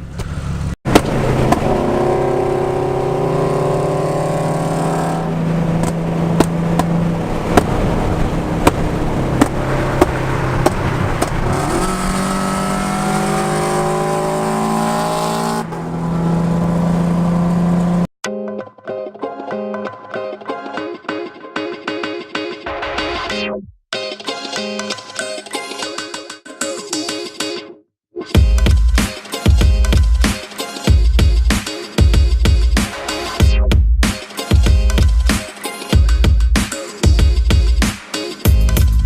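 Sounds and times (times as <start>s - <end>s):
car engine accelerating: 0.0s - 18.1s.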